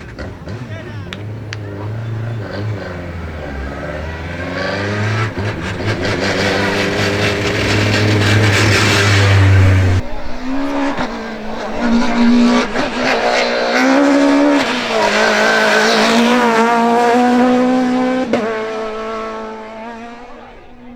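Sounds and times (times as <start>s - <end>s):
rally car engine revving: 0.0s - 20.9s
loud low drone: 2.1s - 17.9s.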